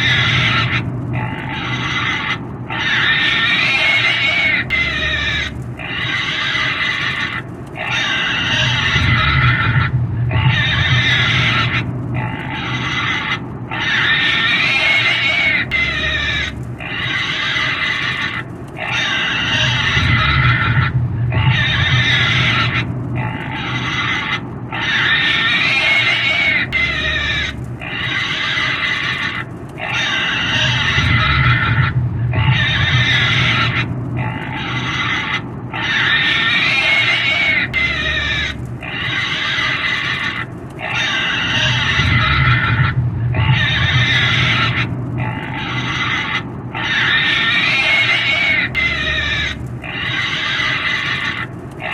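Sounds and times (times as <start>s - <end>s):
pig squealing: 0.0s - 51.9s.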